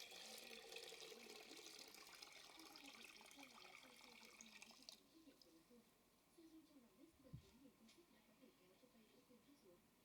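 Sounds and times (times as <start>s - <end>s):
faint trickling water: 0.0s - 5.7s.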